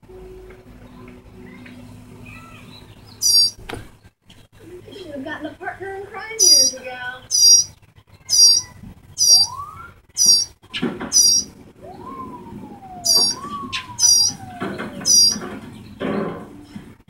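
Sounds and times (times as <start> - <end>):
bird chirping: 0.8 - 4.1, 6.3 - 16.1.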